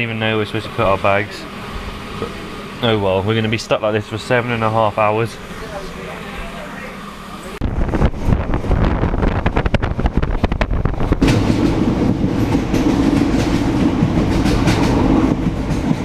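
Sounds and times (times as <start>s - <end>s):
train wheels clattering on rails: 9.4s - 16.0s.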